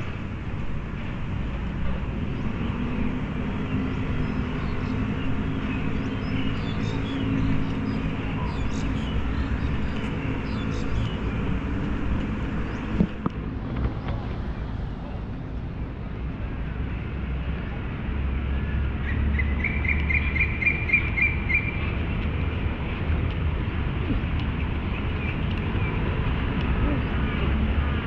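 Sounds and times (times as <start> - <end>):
distant city traffic rumble: 0.0 - 28.0.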